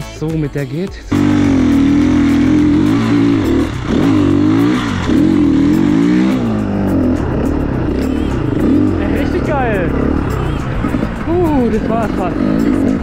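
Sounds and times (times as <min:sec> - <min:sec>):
motorcycle engine revving hard: 0:01.1 - 0:13.0.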